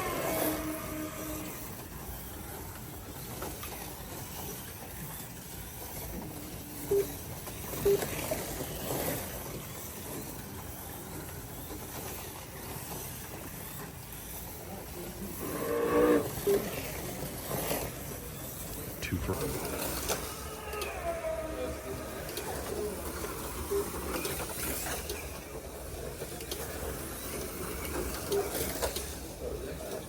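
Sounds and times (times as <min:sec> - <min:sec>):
slot car motors whirring: 0:16.2 - 0:30.0.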